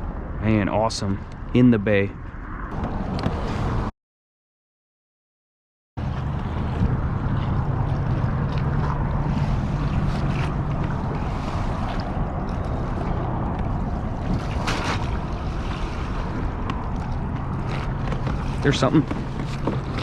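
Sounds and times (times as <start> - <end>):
steady low hum: 6.0 - 20.0
water splashing around kayak: 6.0 - 20.0
wind buffeting microphone: 6.0 - 20.0.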